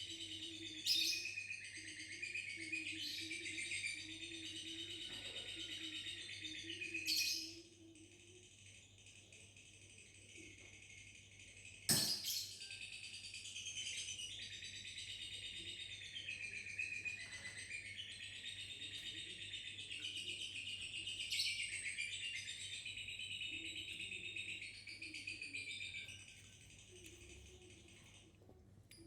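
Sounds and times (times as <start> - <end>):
sharp knock: 11.9 - 12.3.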